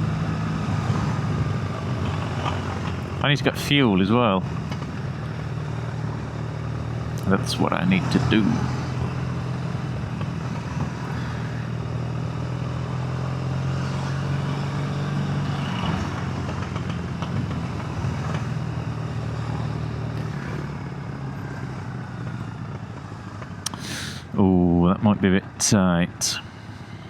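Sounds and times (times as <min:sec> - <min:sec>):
motorcycle engine running: 0:00.0 - 0:23.6
wind and road noise: 0:00.0 - 0:27.0.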